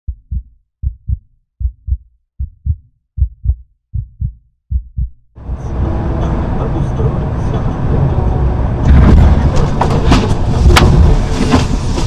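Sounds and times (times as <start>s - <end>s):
heartbeat thumps: 0.0s - 5.3s
road and traffic rumble: 5.4s - 12.0s.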